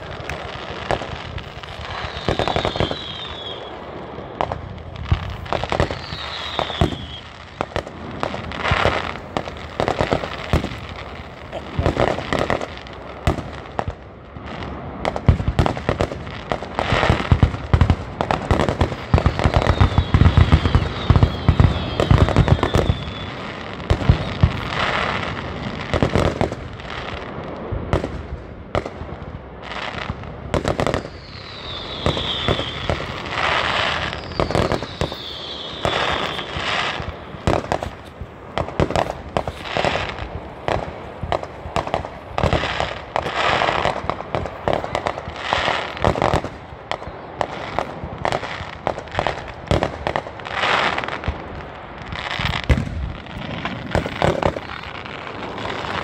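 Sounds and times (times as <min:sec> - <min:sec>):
falling firework whistles: 0:00.0 - 0:13.6, 0:16.7 - 0:27.3, 0:29.6 - 0:51.4, 0:52.0 - 0:56.0
fireworks bangs and crackling: 0:00.0 - 0:56.0
heavy firework booms: 0:00.0 - 0:56.0.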